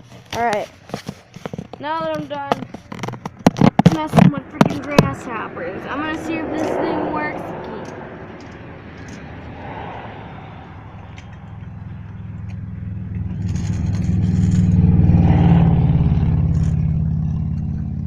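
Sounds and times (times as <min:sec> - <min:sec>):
car driving past: 0:04.4 - 0:18.0.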